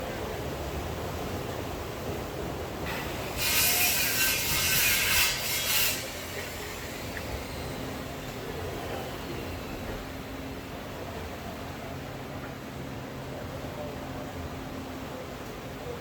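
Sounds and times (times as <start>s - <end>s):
rain hiss: 0.0s - 11.0s
loud rustling and scraping: 3.0s - 6.6s.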